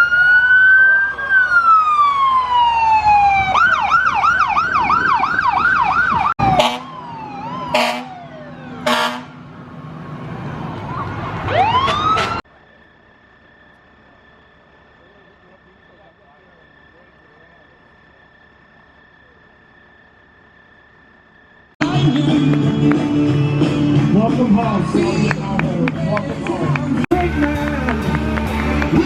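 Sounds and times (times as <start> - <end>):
siren fast yelp: 0.0 - 9.2, 10.7 - 12.4
emergency siren wailing: 0.0 - 26.4
loud horn blasts: 6.4 - 7.0, 7.7 - 8.2, 8.8 - 9.4.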